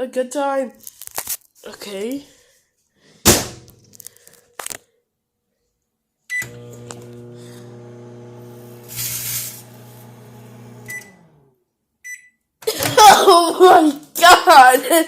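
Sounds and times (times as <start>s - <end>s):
microwave humming: 6.3s - 11.6s
microwave beeping: 6.3s - 12.4s
hissing from snack bag: 8.8s - 9.7s.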